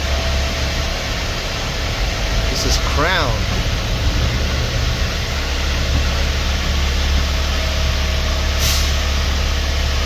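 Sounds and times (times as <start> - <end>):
truck engine droning: 0.0 - 10.0
air hiss: 8.6 - 9.0.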